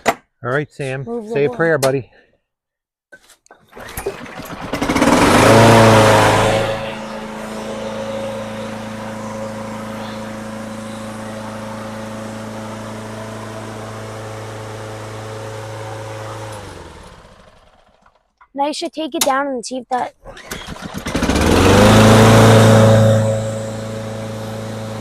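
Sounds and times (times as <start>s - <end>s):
lawnmower engine revving: 3.7s - 18.2s, 20.2s - 25.0s.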